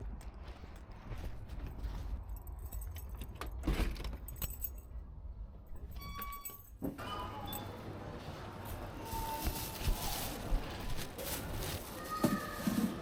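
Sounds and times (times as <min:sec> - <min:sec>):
metallic jingling and clicks: 0:02.2 - 0:05.0.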